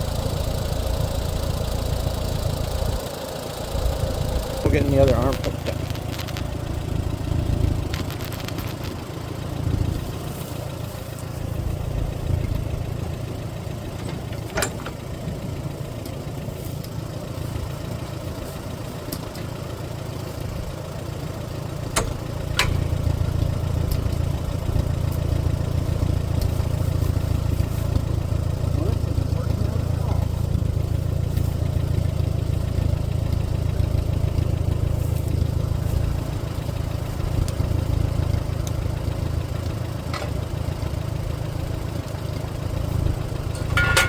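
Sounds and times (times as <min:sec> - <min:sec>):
tractor engine idling: 0:00.0 - 0:44.0
sharp clicks: 0:05.2 - 0:06.6.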